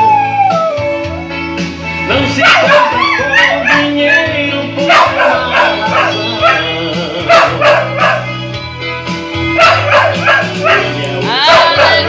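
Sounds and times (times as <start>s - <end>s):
dog howling and yipping: 0.0s - 1.1s, 2.3s - 8.3s, 9.6s - 12.0s
recorded gospel hymn: 2.0s - 8.4s, 9.5s - 12.0s.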